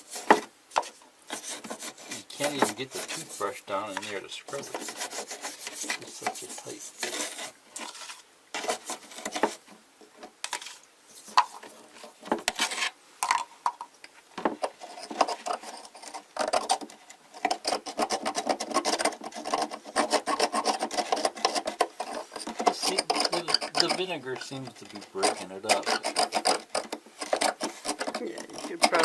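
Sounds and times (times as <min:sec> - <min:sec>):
toothbrush scrubbing scale: 0:17.6 - 0:29.0.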